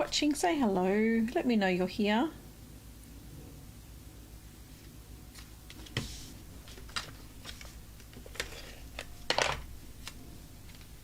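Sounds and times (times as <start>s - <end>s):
paper rustle: 5.3s - 9.1s.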